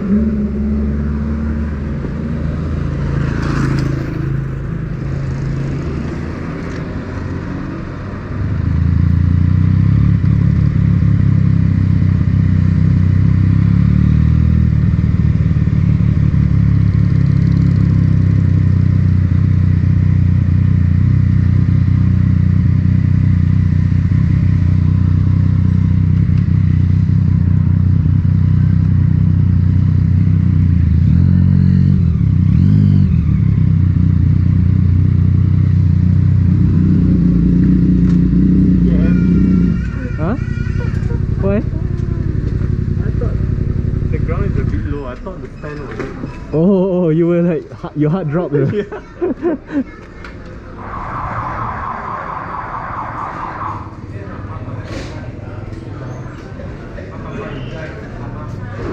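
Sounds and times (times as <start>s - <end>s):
motorcycle engine revving: 0.0s - 46.7s.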